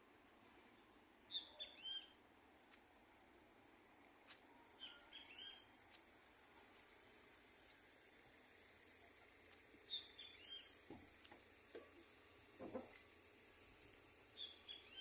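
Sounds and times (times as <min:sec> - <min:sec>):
small birds chirping: 0:01.3 - 0:02.2, 0:04.8 - 0:05.8, 0:09.1 - 0:10.9, 0:14.3 - 0:15.0
steady faint hiss: 0:01.9 - 0:15.0.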